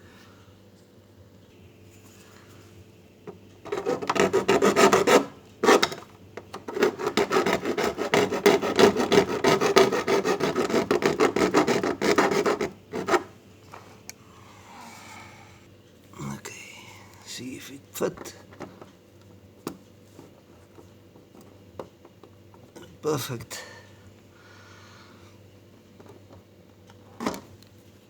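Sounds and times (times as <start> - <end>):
hand file rasping: 3.7 - 13.3.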